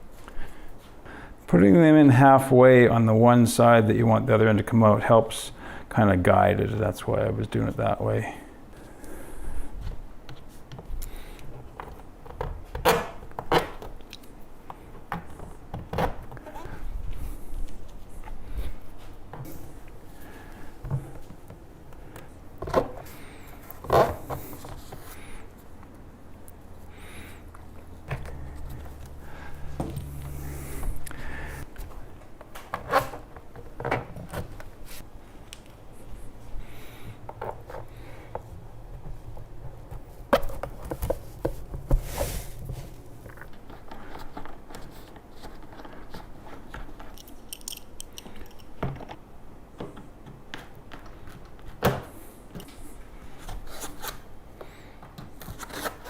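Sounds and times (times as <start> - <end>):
parts knocking and clicking: 46.7 - 49.2.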